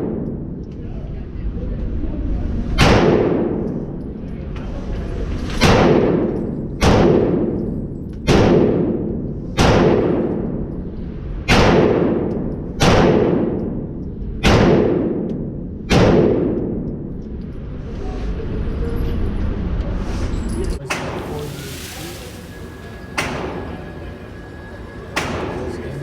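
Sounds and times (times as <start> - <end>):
pistol shots echoing: 25.2 - 25.8.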